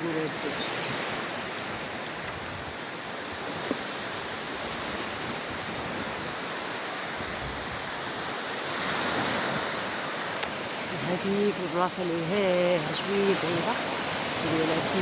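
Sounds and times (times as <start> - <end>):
sea waves breaking on beach: 0.0 - 15.0.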